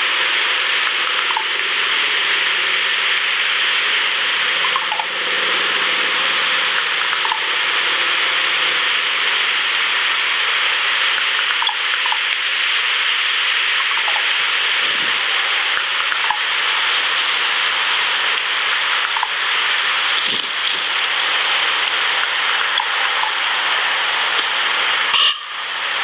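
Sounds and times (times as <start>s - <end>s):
loud steady hiss: 0.0s - 26.0s
faint ticks: 6.8s - 7.5s, 11.1s - 12.4s, 21.8s - 23.4s.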